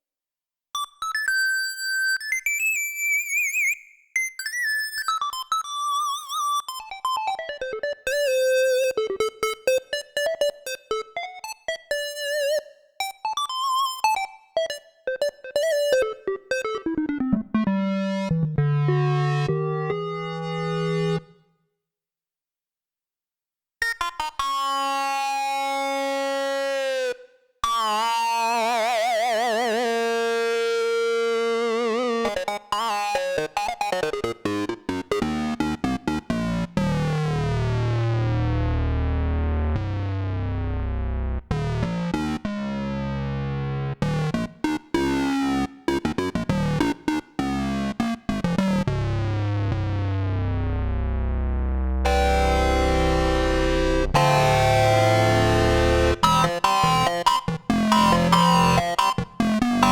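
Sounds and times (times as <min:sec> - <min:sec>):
synthesizer chords: 0:15.5 - 0:21.4, 0:37.1 - 0:44.4, 0:45.4 - 0:59.9
synthesizer bass notes: 0:16.7 - 0:21.3, 0:37.3 - 0:44.4, 0:48.3 - 0:59.9.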